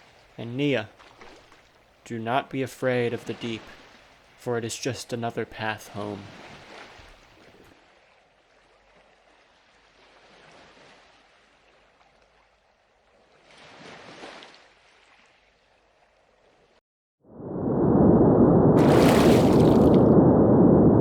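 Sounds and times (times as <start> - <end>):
underwater swirling water: 5.8 - 7.7, 17.4 - 21.0
loud deep rumble: 17.4 - 21.0.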